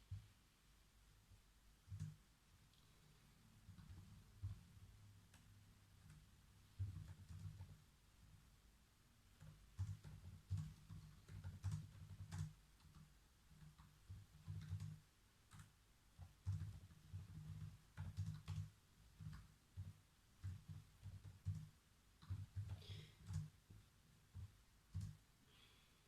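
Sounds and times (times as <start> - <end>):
computer keyboard typing: 1.9 - 2.8, 3.6 - 4.7, 5.3 - 7.8, 9.4 - 25.2.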